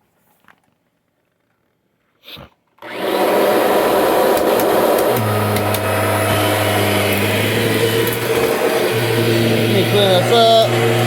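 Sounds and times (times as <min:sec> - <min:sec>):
vacuum cleaner running: 0:02.8 - 0:11.0.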